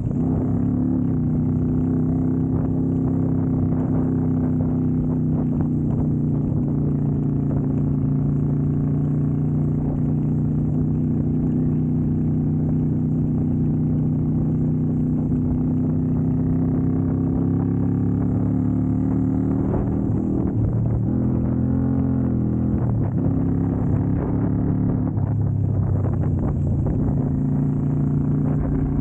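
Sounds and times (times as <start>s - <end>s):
motorcycle engine running: 0.0s - 29.0s
low rumble: 18.0s - 29.0s.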